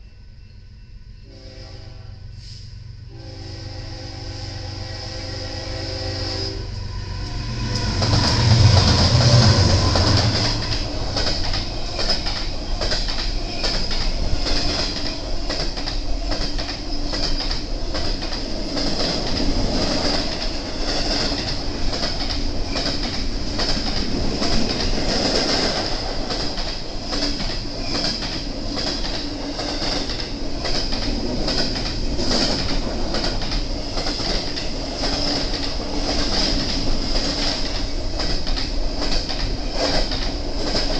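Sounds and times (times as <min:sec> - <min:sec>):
train horn: 0:01.2 - 0:10.9
locomotives rumbling: 0:06.6 - 0:38.3.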